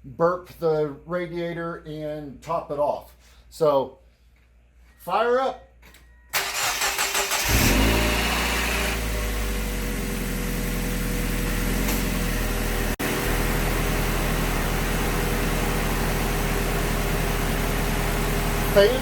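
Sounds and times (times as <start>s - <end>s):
car engine idling: 6.4s - 19.0s.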